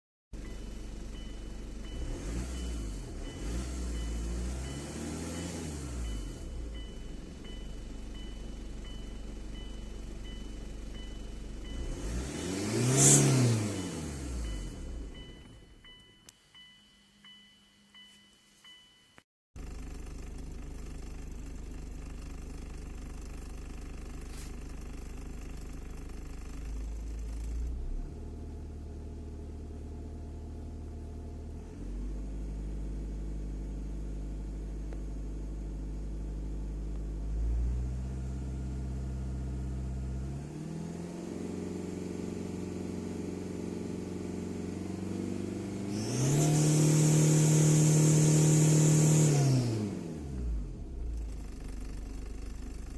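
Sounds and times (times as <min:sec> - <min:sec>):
diesel engine revving: 0:01.0 - 0:15.7, 0:36.0 - 0:52.9.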